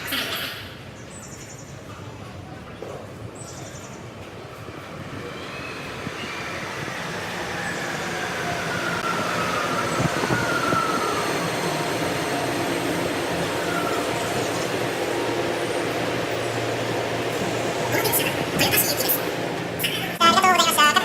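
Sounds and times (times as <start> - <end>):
train running past: 0.0 - 21.0.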